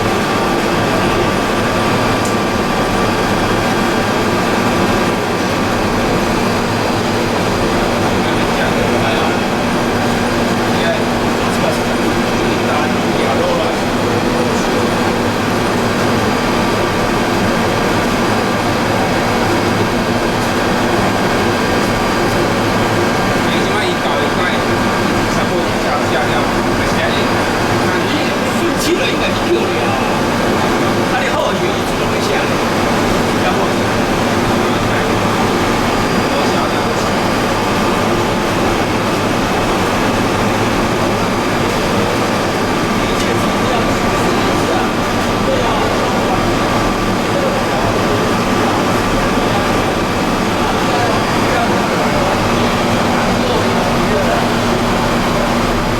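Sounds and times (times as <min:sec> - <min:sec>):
loud machinery noise: 0:00.0 - 0:55.9.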